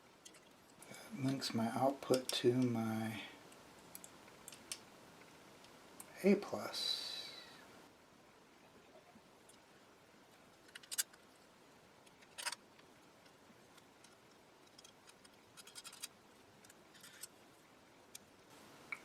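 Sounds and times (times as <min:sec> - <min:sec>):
small metal parts clicking: 0:10.6 - 0:11.2, 0:12.1 - 0:12.6, 0:13.7 - 0:17.3.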